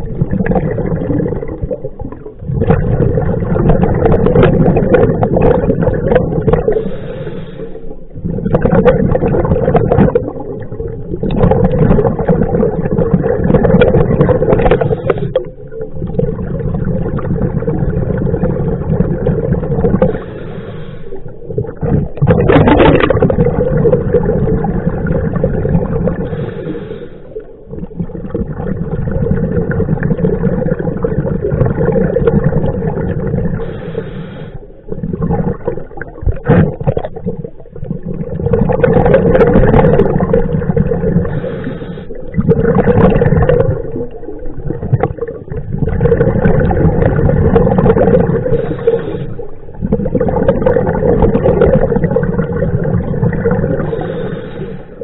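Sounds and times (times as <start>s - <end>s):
exhaled bubbles gurgling: 0.0s - 55.0s
diver breathing through regulator: 6.7s - 8.1s, 14.6s - 15.6s, 20.0s - 21.5s, 26.1s - 27.6s, 33.6s - 34.8s, 41.1s - 42.4s, 48.2s - 49.8s, 53.6s - 55.0s.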